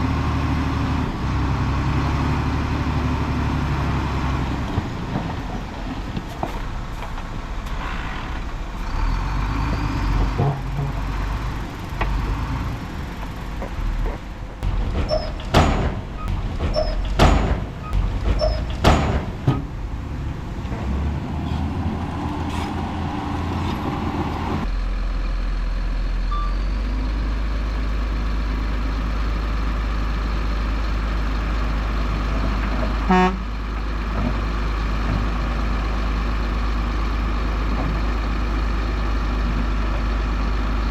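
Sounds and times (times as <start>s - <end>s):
heavy diesel machinery running: 0.0s - 40.9s
loud sharp knocks: 13.6s - 19.8s
horn toot: 33.1s - 33.4s.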